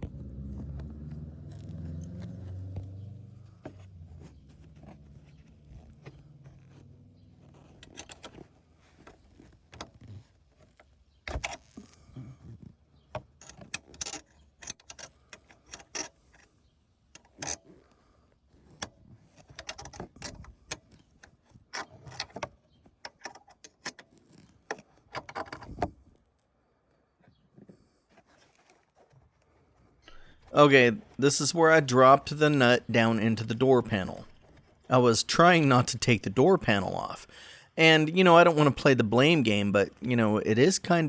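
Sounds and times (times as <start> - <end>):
hand tools and hardware clinking: 3.6 - 16.6, 17.2 - 17.9, 18.6 - 25.9.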